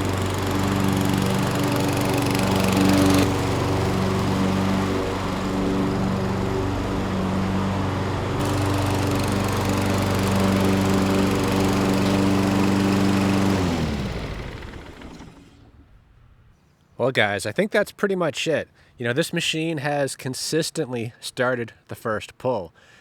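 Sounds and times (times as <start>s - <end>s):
lawn mower engine running: 0.0s - 16.2s.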